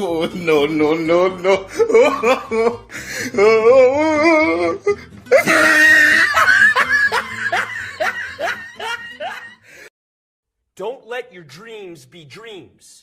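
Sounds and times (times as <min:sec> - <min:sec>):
loud cackling laugh: 0:05.4 - 0:09.6.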